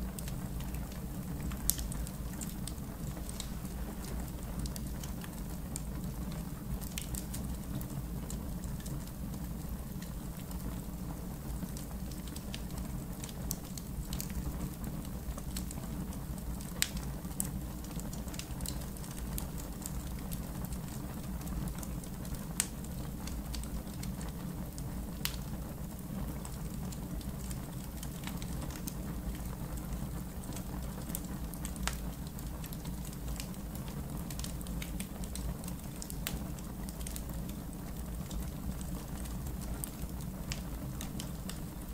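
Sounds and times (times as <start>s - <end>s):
campfire crackling and popping: 0.1s - 41.9s.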